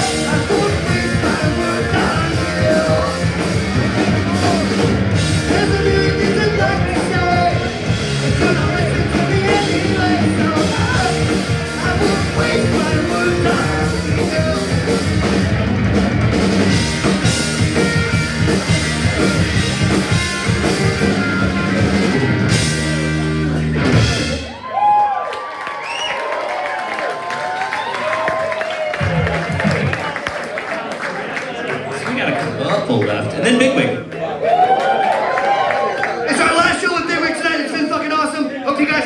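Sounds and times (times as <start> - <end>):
shouted vocals: 0.0 - 7.8, 34.2 - 37.7
distorted electric guitars: 0.0 - 24.6
bass guitar: 0.0 - 24.7
drum kit: 0.0 - 24.8.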